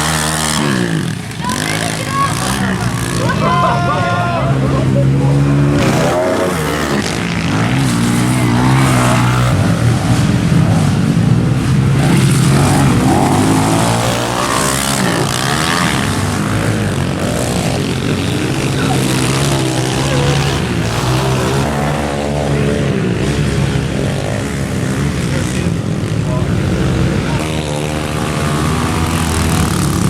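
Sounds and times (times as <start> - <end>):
pit bike engines revving: 0.0 - 30.0.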